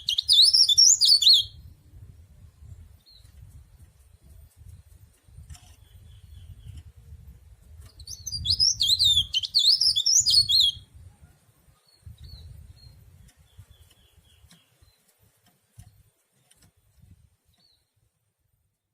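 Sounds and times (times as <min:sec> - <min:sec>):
warbler singing: 0:00.0 - 0:01.8, 0:02.7 - 0:07.2, 0:07.8 - 0:11.1, 0:11.7 - 0:15.1.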